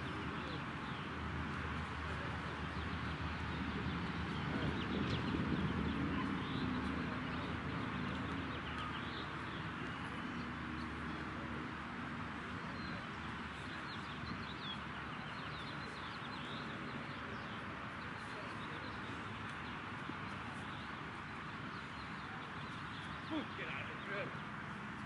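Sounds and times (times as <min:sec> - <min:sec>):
small birds chirping: 0:12.5 - 0:25.0.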